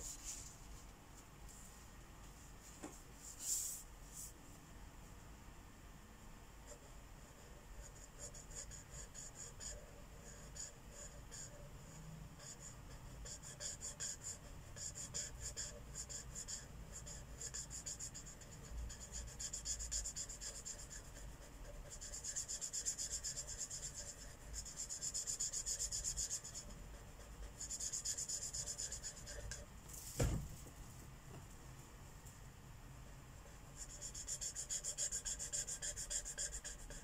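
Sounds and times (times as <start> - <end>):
marker scratching on paper: 6.7 - 29.7, 33.4 - 37.0.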